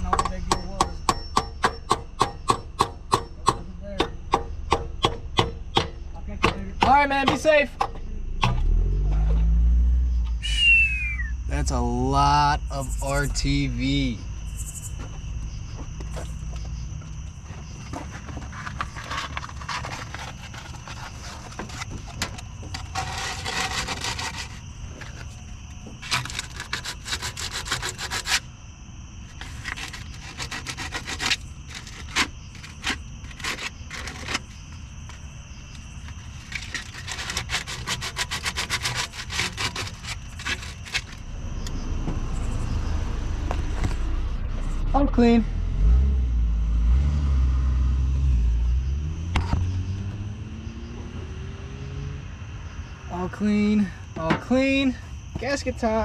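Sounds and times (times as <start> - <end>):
scraping sealant off metal: 17.4 - 28.5, 29.2 - 41.3.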